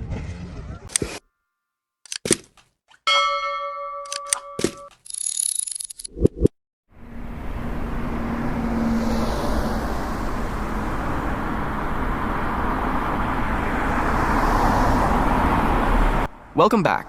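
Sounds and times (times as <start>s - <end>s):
vehicle engine and road rumble: 4.7s - 17.0s.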